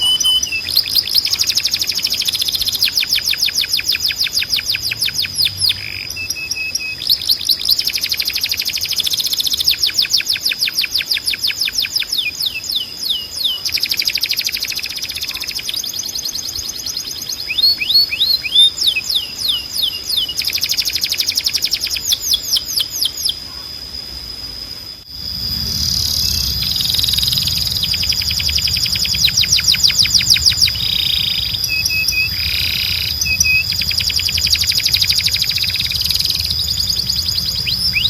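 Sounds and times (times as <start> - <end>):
canary singing: 0.0 - 23.6, 25.1 - 38.0
steady high whistle tone: 0.0 - 38.0
low hum: 23.5 - 38.0.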